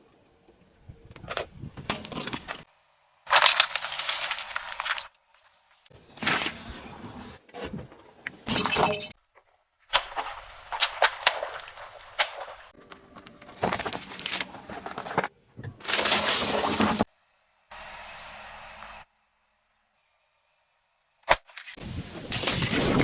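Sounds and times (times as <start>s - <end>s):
objects crunching under car tyres: 3.3s - 8.6s, 10.0s - 17.1s
sharp cracks: 9.9s - 12.8s.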